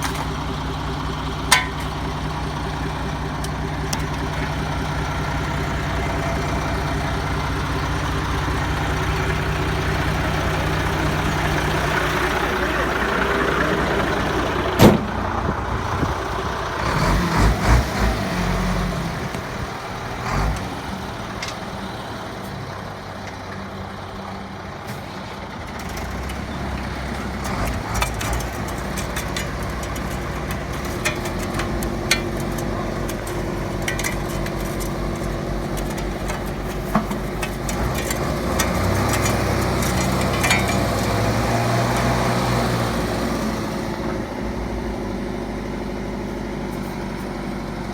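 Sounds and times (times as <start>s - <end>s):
truck engine running: 0.0s - 47.9s
knocks and rattles: 1.5s - 2.2s, 25.7s - 43.2s.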